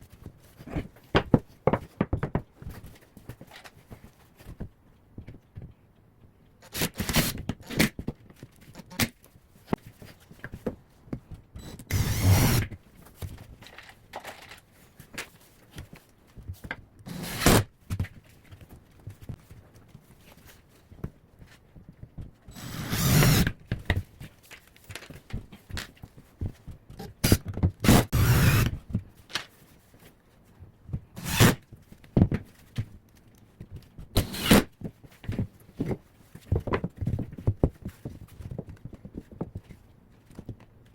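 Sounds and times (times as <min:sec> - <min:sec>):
wooden thunks and knocks: 0:00.8 - 0:02.8.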